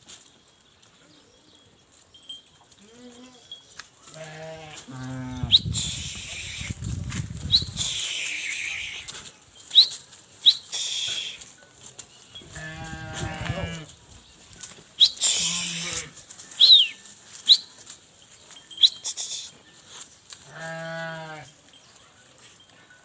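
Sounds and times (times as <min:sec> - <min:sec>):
farm animal calling: 0:02.8 - 0:14.4, 0:15.0 - 0:23.0
short high chirps: 0:18.7 - 0:19.6.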